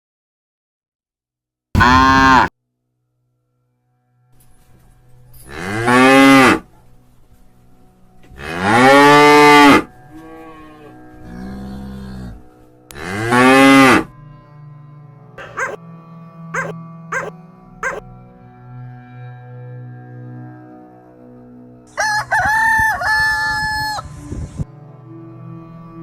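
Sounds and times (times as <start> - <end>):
cattle mooing: 15.4 - 15.8, 16.6 - 18.0.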